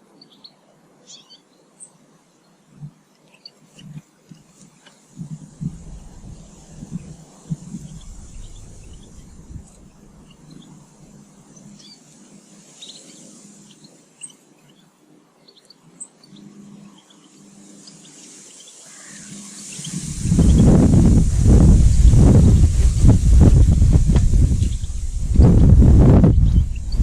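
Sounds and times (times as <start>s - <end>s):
small birds chirping: 0.1s - 27.0s
wind buffeting microphone: 5.2s - 11.5s, 19.3s - 27.0s.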